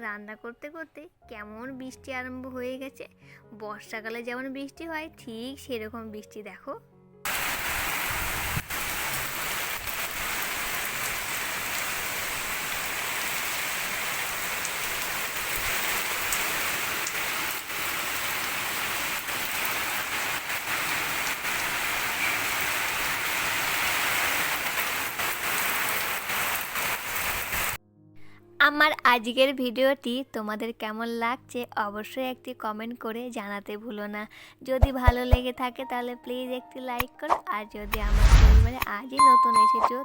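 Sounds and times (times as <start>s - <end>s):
heavy rain pouring: 7.3s - 27.8s
sharp raindrop hits: 7.3s - 27.8s.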